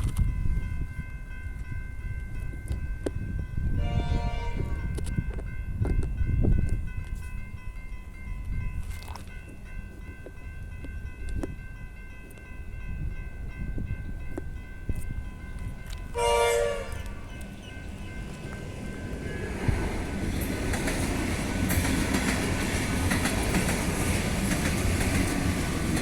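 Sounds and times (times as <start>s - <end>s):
train horn blast: 3.8s - 5.0s, 16.1s - 17.3s
train wheel clicks: 19.7s - 26.0s.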